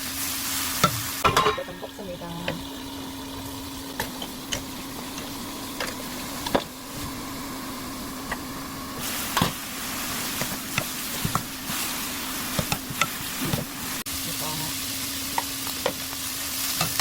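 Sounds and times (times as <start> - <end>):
food sizzling in a pan: 0.0 - 17.0
steady hum: 1.3 - 14.8
spatula knocking and scraping pan: 10.3 - 11.8, 12.5 - 13.7.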